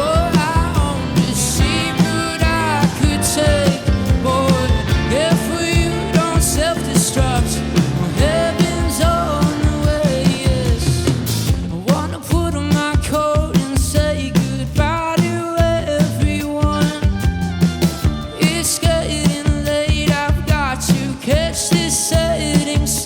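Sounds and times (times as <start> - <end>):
bending lead melody: 0.0 - 11.7
bass guitar: 0.0 - 23.0
drums: 0.0 - 23.0
guitars: 0.0 - 23.0.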